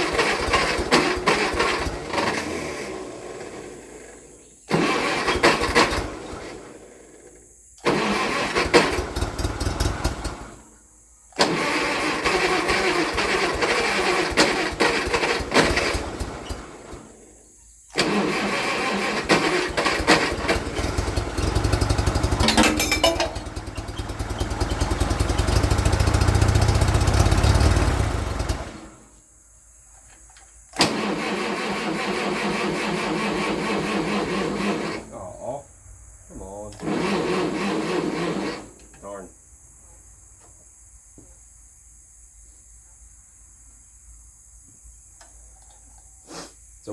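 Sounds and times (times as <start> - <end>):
starter motor cranking engine: 0.0 - 10.7, 11.4 - 29.0, 30.7 - 35.5, 36.5 - 39.2.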